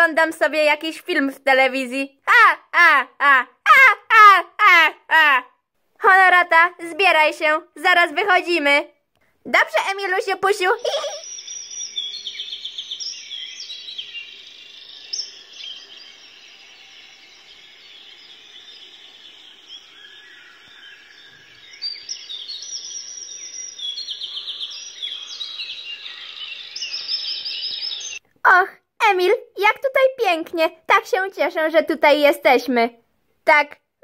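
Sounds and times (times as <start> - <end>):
songbirds chirping and singing: 9.9 - 28.2.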